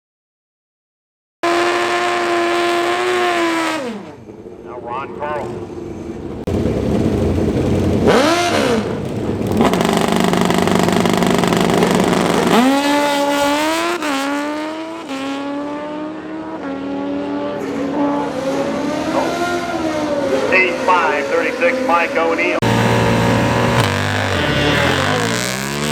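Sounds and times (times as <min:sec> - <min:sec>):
motorcycle engine revving: 0:01.4 - 0:04.5, 0:05.4 - 0:25.9.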